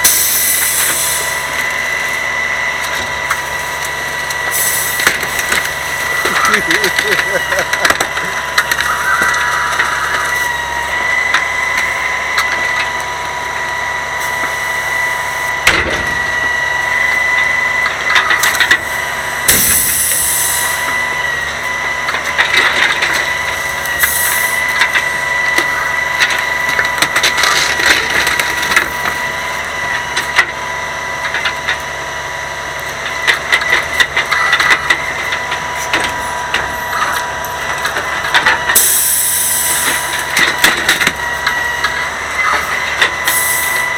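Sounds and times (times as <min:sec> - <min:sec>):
truck engine whine: 0:00.0 - 0:43.9
wood cracking and splintering: 0:01.2 - 0:38.8.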